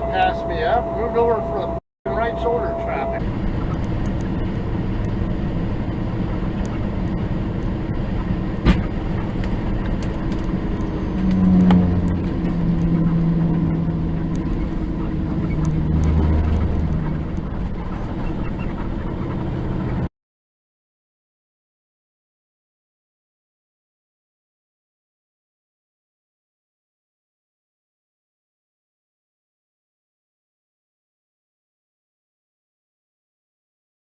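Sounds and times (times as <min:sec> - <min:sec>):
deep engine hum: 0:00.0 - 0:20.1
truck engine and road noise: 0:00.0 - 0:20.1.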